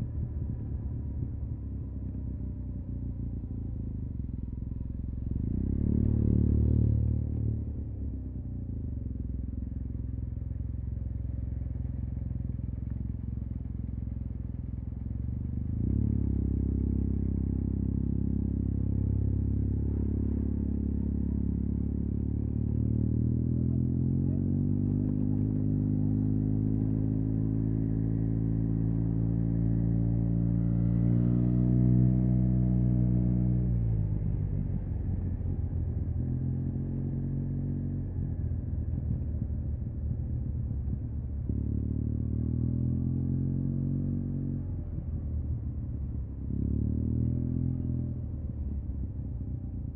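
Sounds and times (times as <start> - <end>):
motorcycle engine revving: 15.0 - 49.0.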